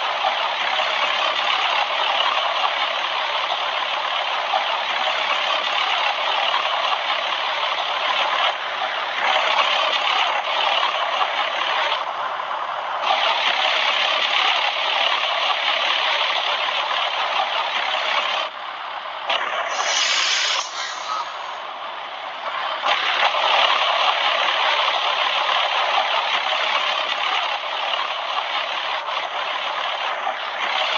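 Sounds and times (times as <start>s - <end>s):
heat pump hissing rush: 19.6s - 21.9s.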